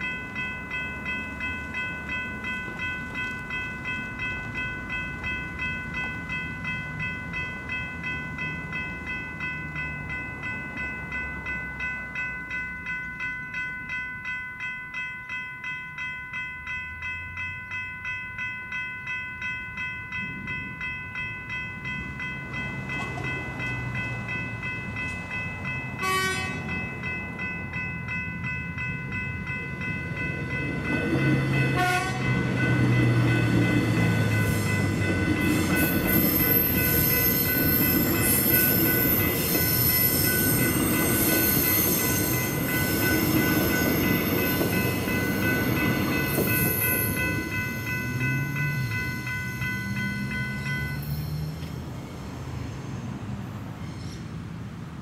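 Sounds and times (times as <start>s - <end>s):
level-crossing bells ringing: 0.0s - 51.7s
train horn blasts: 26.0s - 26.7s, 31.7s - 32.3s
train wheel and motor whine: 30.0s - 55.0s.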